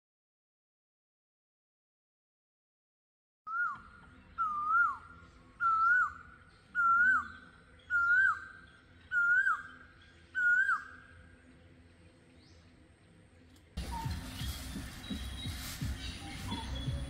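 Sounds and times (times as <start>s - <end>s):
bird whistling: 3.5s - 11.2s, 13.8s - 17.0s.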